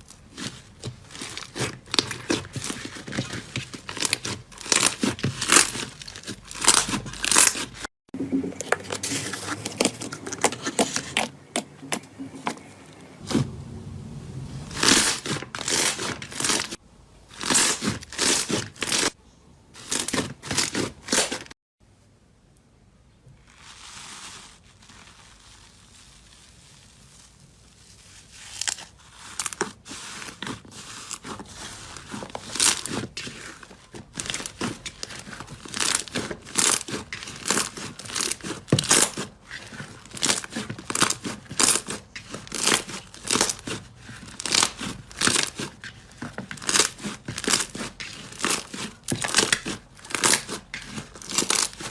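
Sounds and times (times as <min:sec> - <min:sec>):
slime squeezed crackling and popping: 0:40.0 - 0:45.8.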